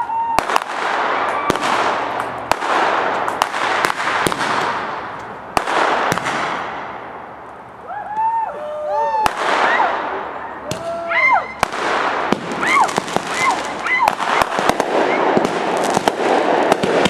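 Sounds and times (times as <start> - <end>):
firework bangs: 0.0 - 7.6, 9.2 - 17.0
firework crackling hiss: 11.6 - 17.0.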